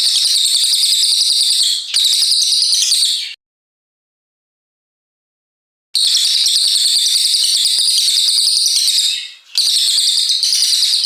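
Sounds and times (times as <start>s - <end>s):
songbird rapid trilling song: 6.0s - 11.0s.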